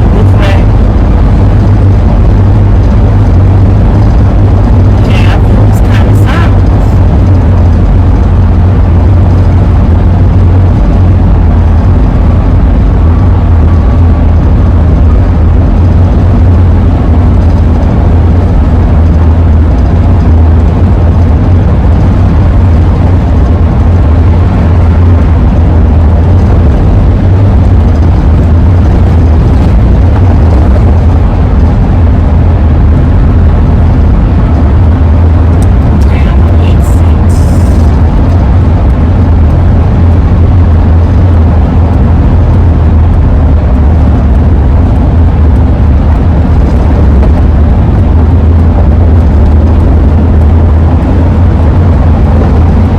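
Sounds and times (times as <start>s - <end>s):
van road and wind noise: 0.0s - 52.9s.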